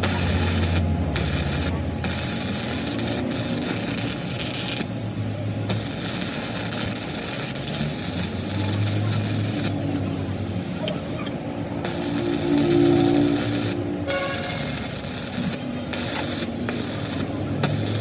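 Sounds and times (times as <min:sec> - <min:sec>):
low hum: 0:11.3 - 0:14.8.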